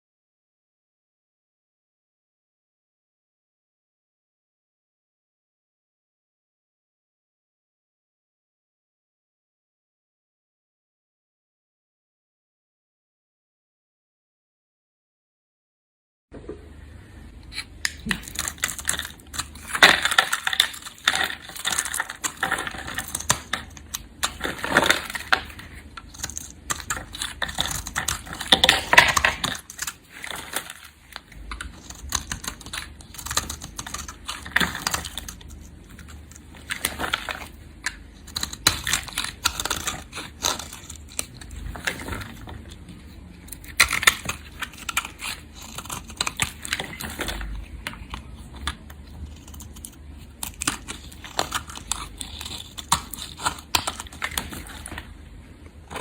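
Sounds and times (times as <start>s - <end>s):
knife cutting soap: 17.4s - 55.1s.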